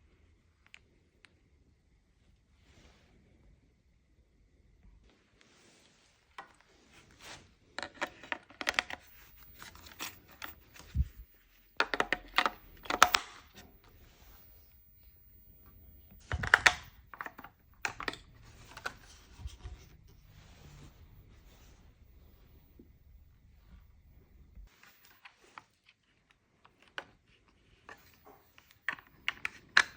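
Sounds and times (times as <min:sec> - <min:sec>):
plastic housing clicks and scrapes: 0:07.8 - 0:20.2, 0:27.8 - 0:29.9.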